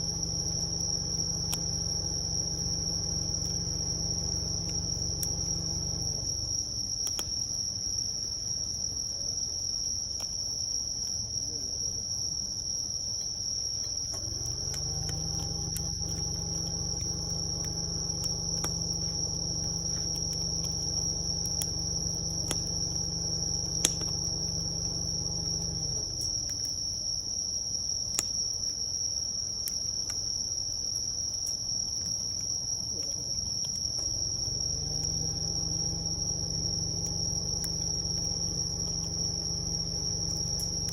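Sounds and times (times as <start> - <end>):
low multi-tone hum: 0.0 - 7.0, 14.2 - 26.7, 34.0 - 40.9
wood fire crackling and popping: 0.0 - 8.3, 10.0 - 11.3, 13.2 - 27.4, 28.0 - 40.9
crickets chirring: 0.0 - 40.9.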